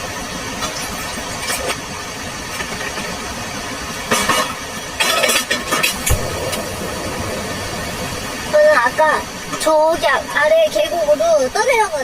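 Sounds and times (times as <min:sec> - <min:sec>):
rain: 0:00.0 - 0:12.0
storm wind rumble: 0:05.7 - 0:12.0
short loud noise bursts: 0:05.9 - 0:08.6.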